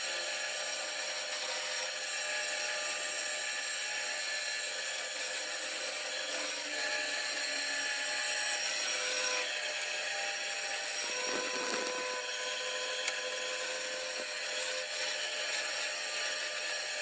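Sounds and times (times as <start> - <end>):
power tool cutting wood: 0.0 - 17.0.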